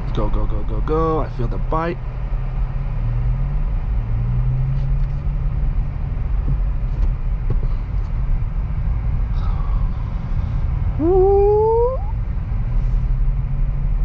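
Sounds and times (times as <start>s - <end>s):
car engine pulling away: 0.0s - 11.0s.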